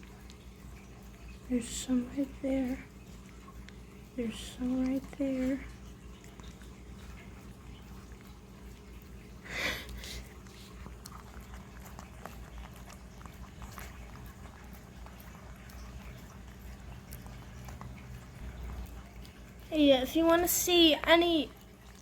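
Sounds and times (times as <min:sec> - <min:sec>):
puppy licking wet clicks: 0:00.0 - 0:22.0
puppy breathy huff: 0:09.4 - 0:10.8.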